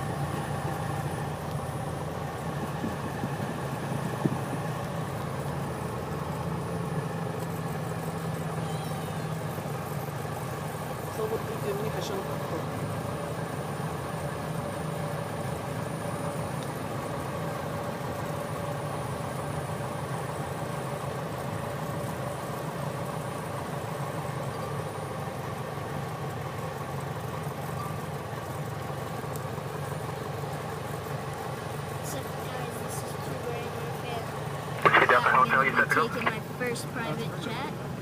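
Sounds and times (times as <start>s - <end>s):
light aircraft engine idling: 0.0s - 38.0s.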